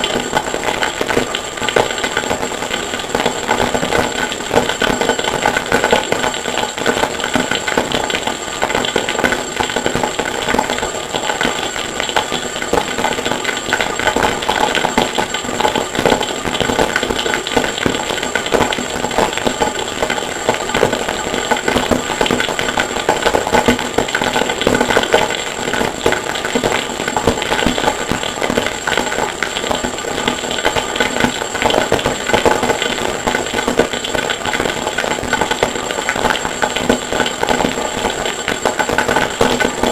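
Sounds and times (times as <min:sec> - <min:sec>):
steady high whine: 0:00.0 - 0:39.9.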